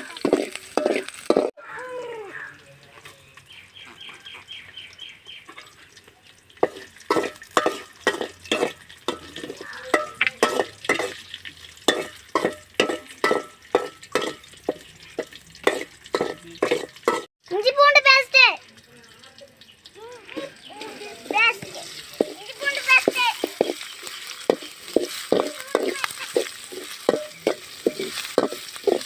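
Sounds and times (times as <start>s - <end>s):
spoon scraping a pan: 0.0s - 1.5s, 6.6s - 17.3s, 21.2s - 29.0s
shallots sizzling in a pan: 0.0s - 29.0s.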